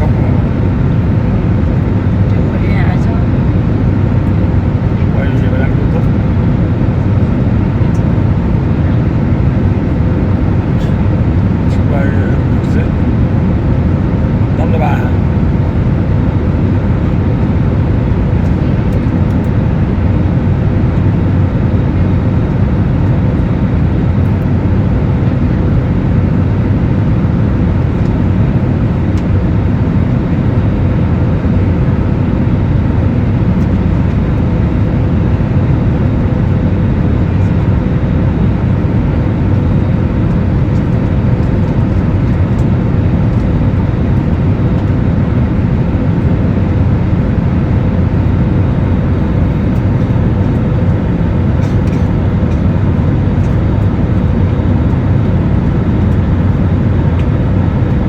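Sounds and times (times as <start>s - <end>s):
faint constant hum: 0.0s - 58.0s
jet cabin rumble: 0.0s - 58.0s.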